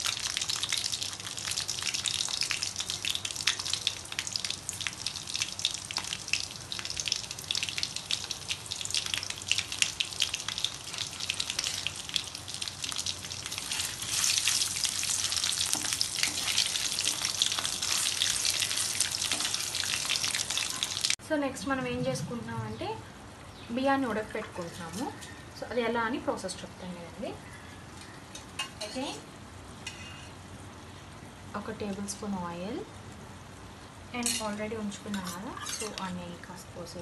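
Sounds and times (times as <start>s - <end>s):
potatoes frying in hot oil: 0.0s - 21.8s, 34.1s - 37.0s.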